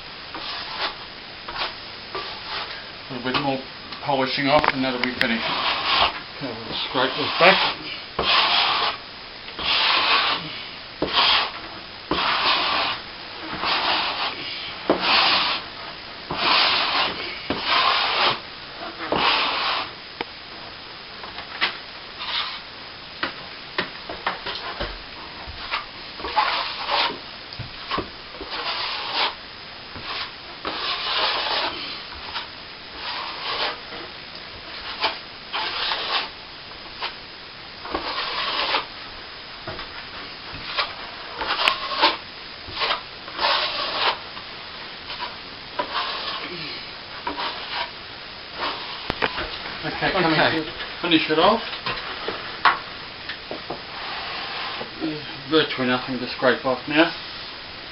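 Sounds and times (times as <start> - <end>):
steel trowel scraping cement: 6.8 - 9.0, 9.6 - 15.6, 16.3 - 18.4, 19.0 - 19.9, 22.2 - 22.6, 25.7 - 27.2, 27.9 - 29.4, 30.0 - 33.8, 34.8 - 36.3, 37.9 - 38.9, 40.7 - 44.2, 45.1 - 47.9.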